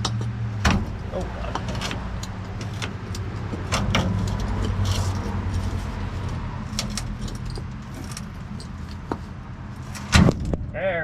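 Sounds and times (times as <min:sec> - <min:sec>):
metallic clinks and rattles: 0:06.6 - 0:09.1.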